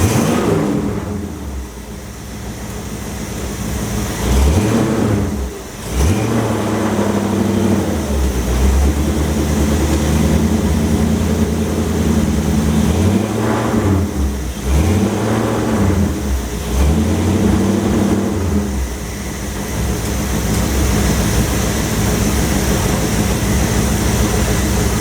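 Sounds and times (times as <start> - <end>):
hot rod engine revving: 0.0 - 25.0.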